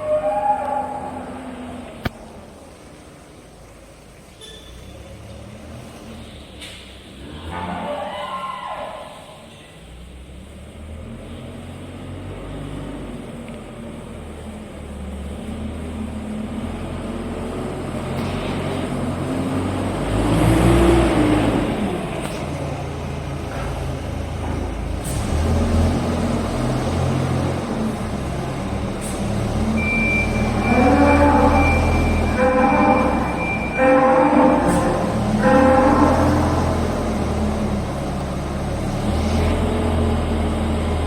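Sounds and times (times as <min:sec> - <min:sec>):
diesel engine revving: 0:09.2 - 0:41.0
steady high-pitched tone: 0:29.8 - 0:35.9.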